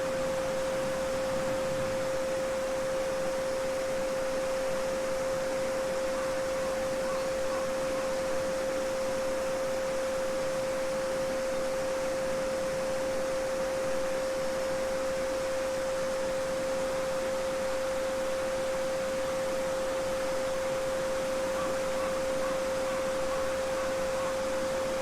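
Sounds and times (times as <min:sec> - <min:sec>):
steady pure sine tone: 0:00.0 - 0:25.0
babbling brook: 0:03.6 - 0:10.7, 0:20.6 - 0:25.0.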